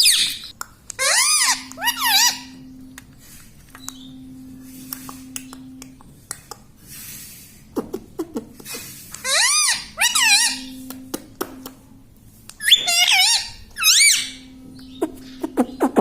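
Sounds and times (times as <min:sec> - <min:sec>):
parakeet screeching call: 0:00.0 - 0:02.6, 0:09.2 - 0:10.8, 0:12.6 - 0:15.0.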